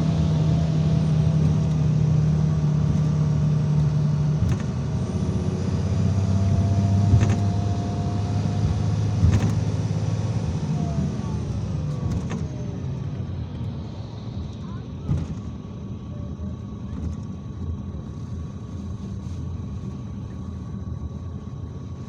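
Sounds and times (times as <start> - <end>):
bus engine drone: 0.0 - 22.0
faint whine: 0.0 - 22.0
knocks and rattles of bus body: 0.0 - 22.0.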